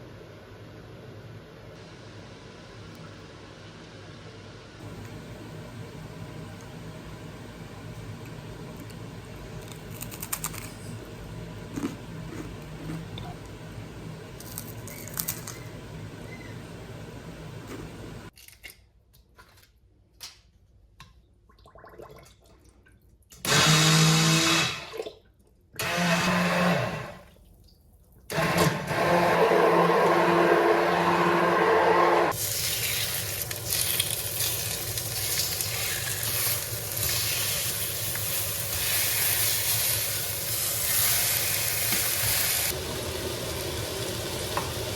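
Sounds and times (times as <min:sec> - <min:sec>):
small electric kitchen motor: 0:23.4 - 0:24.9, 0:25.8 - 0:27.2, 0:28.3 - 0:44.9.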